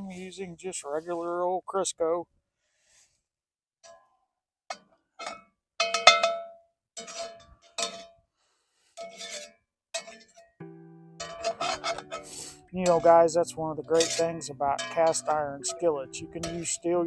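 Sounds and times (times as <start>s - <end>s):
metal utensil clinking on skillet: 4.7s - 8.2s, 9.0s - 10.5s, 11.2s - 17.0s.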